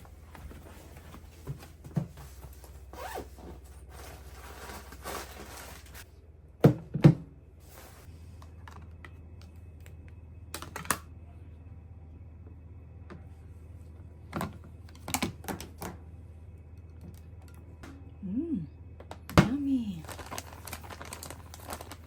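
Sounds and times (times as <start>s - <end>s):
handling rustling and scraping: 0.0s - 6.1s, 7.6s - 8.4s.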